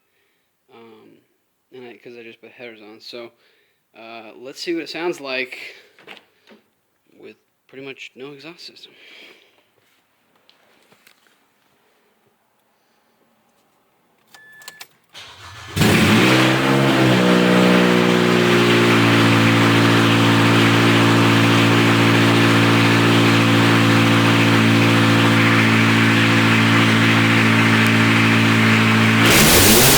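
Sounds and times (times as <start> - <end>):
engine starter cranking: 15.1 - 16.6
car engine revving and idling: 15.4 - 29.9.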